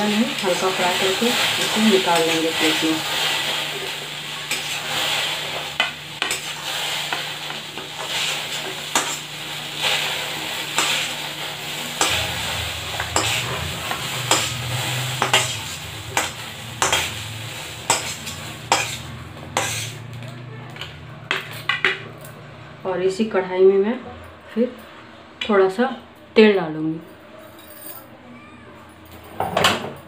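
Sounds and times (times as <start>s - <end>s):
food sizzling in hot oil: 0.0s - 20.2s
spatula scraping through food: 4.4s - 9.3s, 10.7s - 11.2s, 12.0s - 20.0s.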